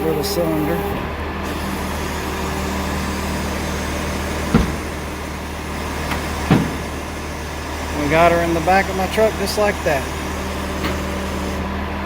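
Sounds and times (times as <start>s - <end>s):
engine running steadily: 0.0s - 12.0s
short knocks: 4.4s - 5.2s, 6.0s - 7.0s.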